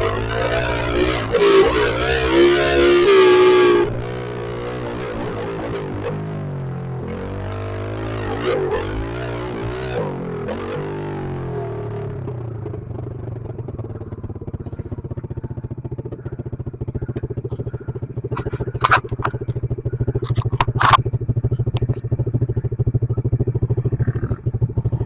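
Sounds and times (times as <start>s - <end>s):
motorbike engine idling: 0.0s - 25.0s
sharp metallic clacks: 18.3s - 22.2s.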